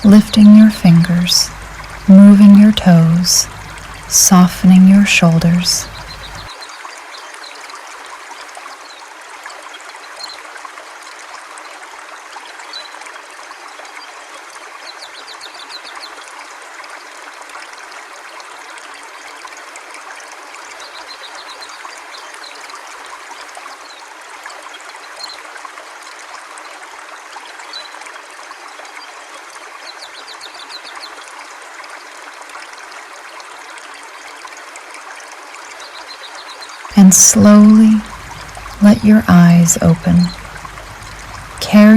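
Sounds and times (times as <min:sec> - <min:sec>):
river water rushing: 0:00.0 - 0:02.1, 0:02.9 - 0:06.5, 0:37.0 - 0:41.9.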